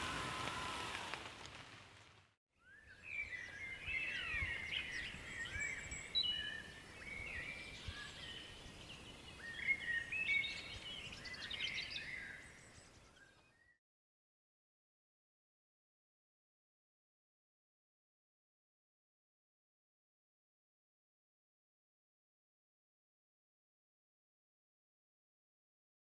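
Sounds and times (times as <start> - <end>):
songbirds singing: 2.6 - 13.8.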